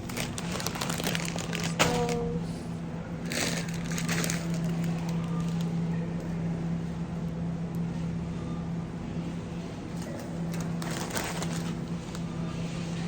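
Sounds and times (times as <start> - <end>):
packaging crinkling: 0.0 - 2.2, 3.2 - 5.7, 10.5 - 12.2
steady low hum: 0.0 - 13.0.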